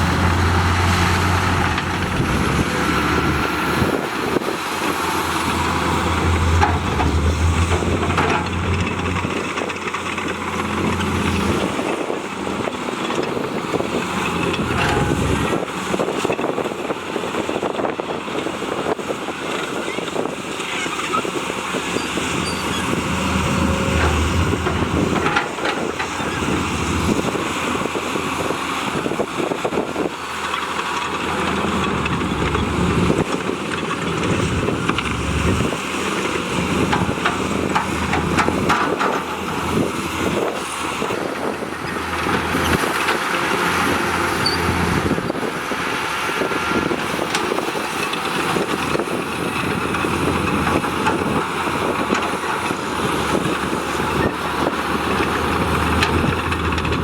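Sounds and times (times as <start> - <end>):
heavy diesel engine running: 0.0 - 57.0
metallic clanks: 14.4 - 15.7.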